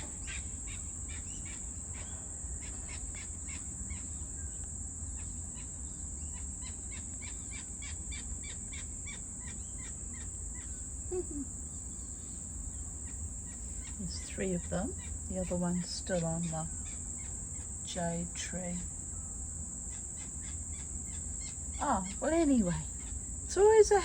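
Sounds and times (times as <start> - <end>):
high drone of insects: 0.0 - 24.0
birds chirping: 6.2 - 24.0.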